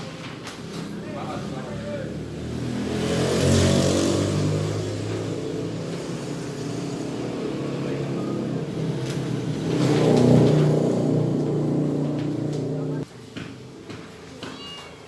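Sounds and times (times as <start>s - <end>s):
vehicle engine running: 3.1s - 13.0s.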